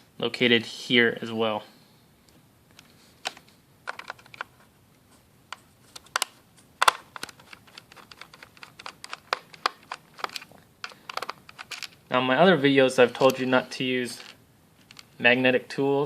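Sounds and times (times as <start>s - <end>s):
screwdriver clicking on plastic case: 6.2s - 11.9s.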